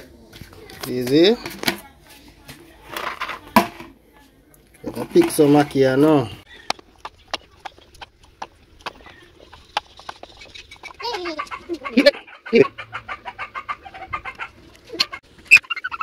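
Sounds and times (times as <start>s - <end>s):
bird chirping: 6.4s - 12.6s.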